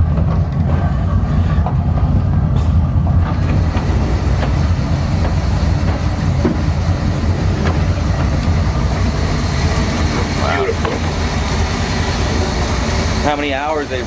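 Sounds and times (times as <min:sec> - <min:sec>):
boat engines idling: 0:02.8 - 0:14.0.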